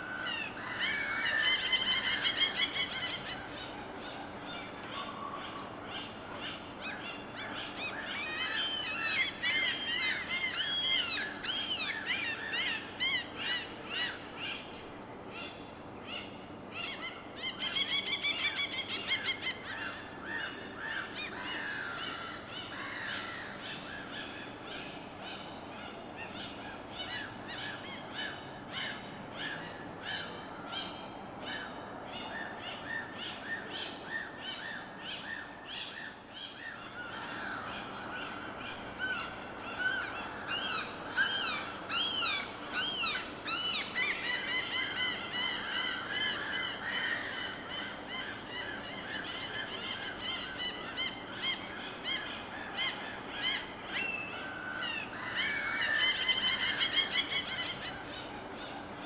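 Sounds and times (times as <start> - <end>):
birds chirping chorus: 17.2 - 59.0.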